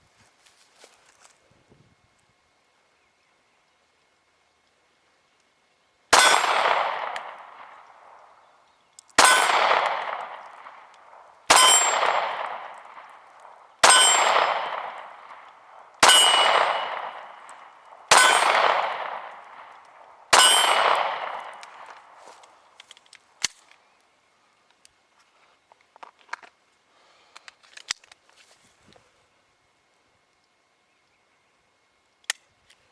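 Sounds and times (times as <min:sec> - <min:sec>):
pistol shots with ringing tail: 0:06.1 - 0:08.4, 0:09.2 - 0:22.5.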